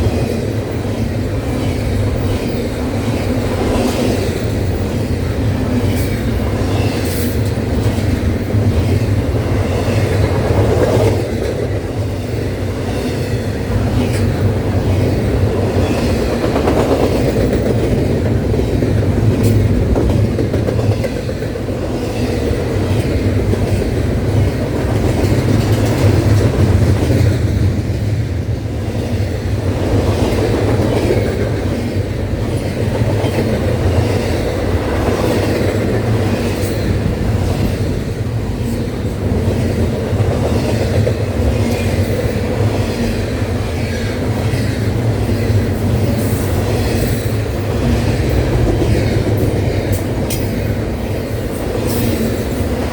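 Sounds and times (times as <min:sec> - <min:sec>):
train wheels clacking over rail joints: 0:00.0 - 0:27.9
freight train rumbling past: 0:00.0 - 0:52.9.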